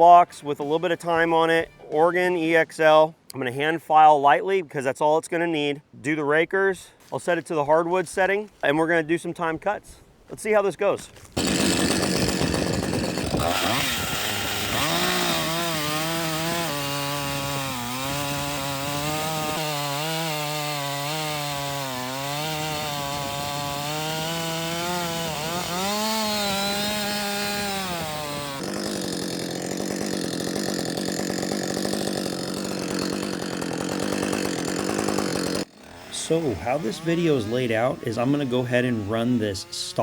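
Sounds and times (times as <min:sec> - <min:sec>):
chainsaw cutting wood: 0:11.2 - 0:40.0.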